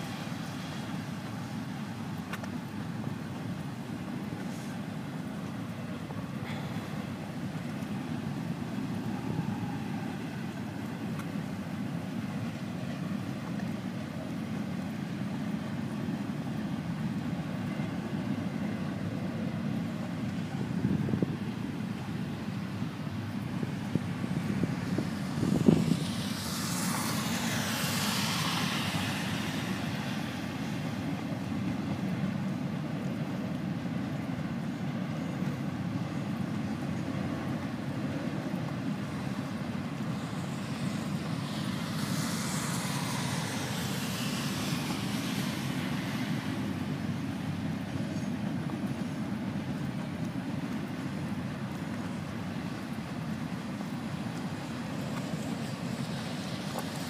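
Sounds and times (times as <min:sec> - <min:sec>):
hiss: 0:04.4 - 0:04.9, 0:25.2 - 0:31.1, 0:40.0 - 0:47.1
freight train rumbling past: 0:17.1 - 0:32.6, 0:37.2 - 0:49.2.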